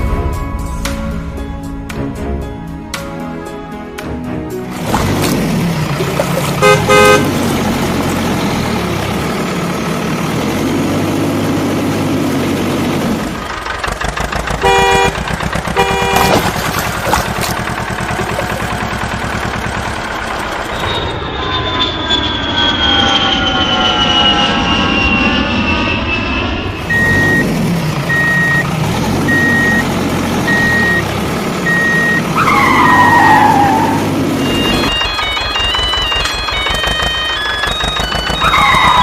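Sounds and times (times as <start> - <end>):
vehicle engine rumbling: 4.5 - 39.0
horn honking: 4.8 - 8.1, 14.5 - 18.8, 31.7 - 37.0, 37.8 - 39.0.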